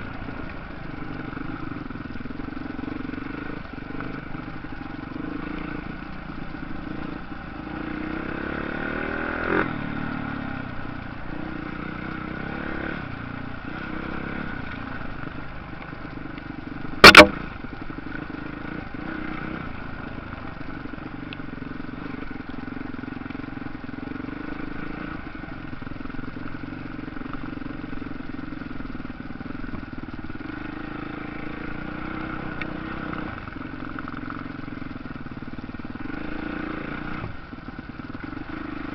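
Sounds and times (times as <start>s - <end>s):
motorcycle engines revving: 0.0s - 38.9s
loud sharp bang: 17.0s - 17.4s.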